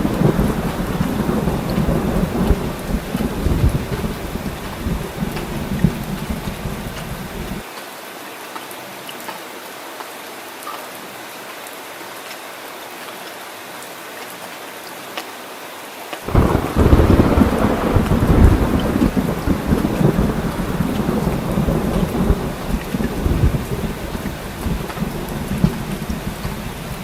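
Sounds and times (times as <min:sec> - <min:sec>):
thunder rumbling: 0:00.0 - 0:07.6, 0:16.3 - 0:27.0
heavy rain: 0:00.0 - 0:27.0.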